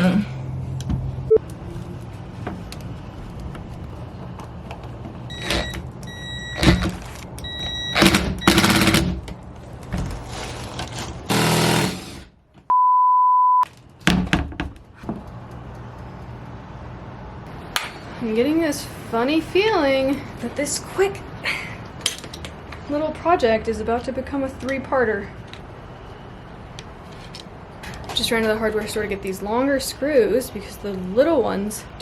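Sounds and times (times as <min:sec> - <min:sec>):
censor bleep tone: 0:12.7 - 0:13.6
short high beeps: 0:12.7 - 0:13.6.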